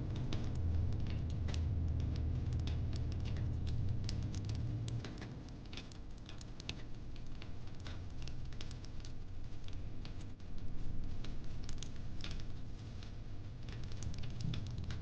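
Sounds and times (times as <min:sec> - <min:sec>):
low steady rumble: 0:00.0 - 0:05.3
wood fire crackling: 0:00.4 - 0:15.0.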